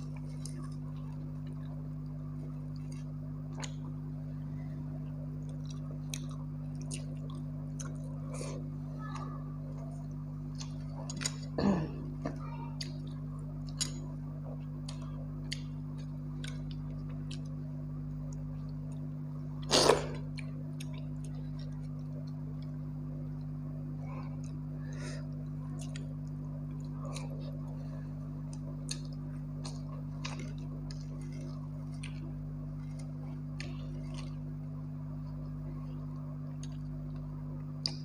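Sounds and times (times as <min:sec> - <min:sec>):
close chewing and mouth clicks: 0:00.0 - 0:04.0, 0:05.4 - 0:11.6, 0:12.8 - 0:23.5, 0:25.3 - 0:38.0
steady low hum: 0:00.0 - 0:38.0
loud mouth noises: 0:19.6 - 0:20.3.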